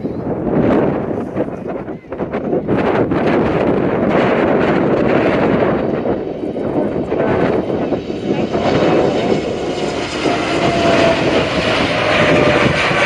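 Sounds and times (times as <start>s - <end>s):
jet engines at takeoff power: 0.0s - 13.0s
wind on microphone: 0.0s - 13.0s.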